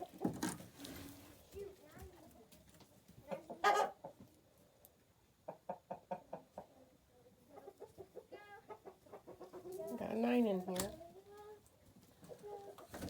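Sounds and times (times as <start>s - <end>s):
chickens clucking: 0.0s - 1.3s, 2.7s - 13.0s
chicken squawk: 3.5s - 4.0s.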